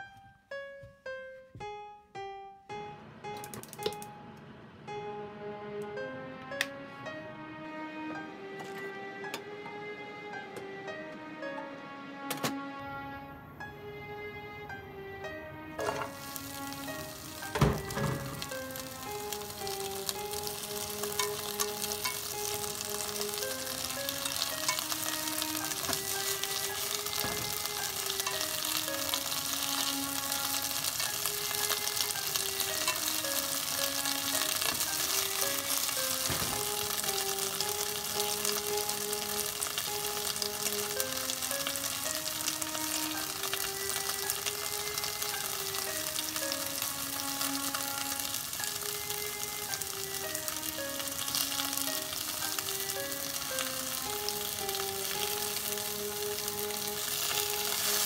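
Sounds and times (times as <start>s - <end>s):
soft background music: 0.0s - 58.0s
greens sizzling in oil: 15.8s - 58.0s.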